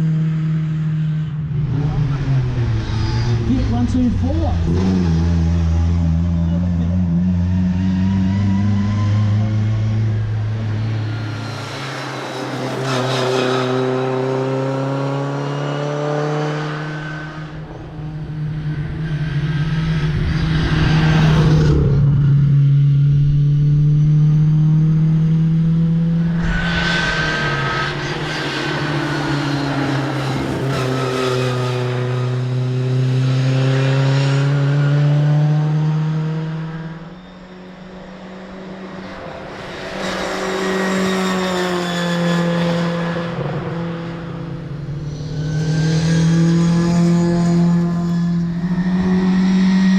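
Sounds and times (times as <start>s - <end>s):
car engine revving through gears: 1.6s - 49.9s.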